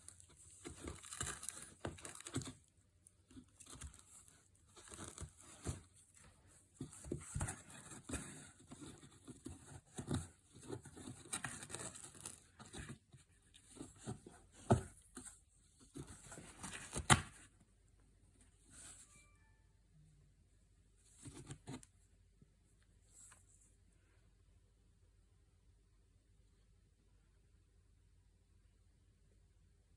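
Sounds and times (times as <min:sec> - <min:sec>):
cat shredding cardboard: 0:00.1 - 0:02.7, 0:06.9 - 0:13.0.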